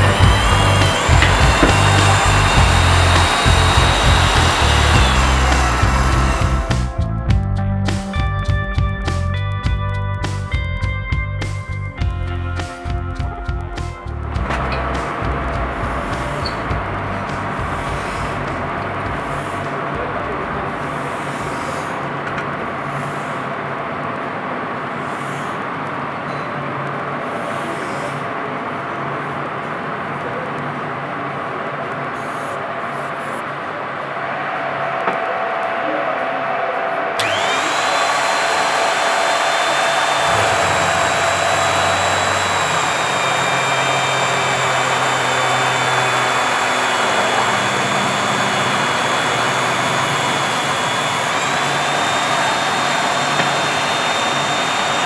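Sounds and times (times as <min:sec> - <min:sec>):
drilling machine humming: 0:00.0 - 0:07.3, 0:12.0 - 0:23.3, 0:37.2 - 0:55.0.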